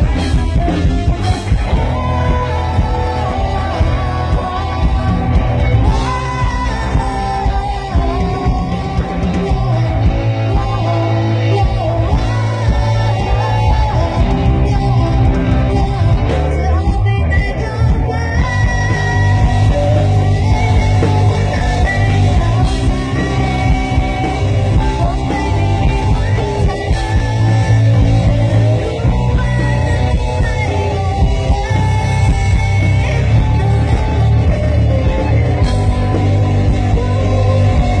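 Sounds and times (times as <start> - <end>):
lead vocal singing: 0.0 - 38.0
rock band playing live: 0.0 - 38.0.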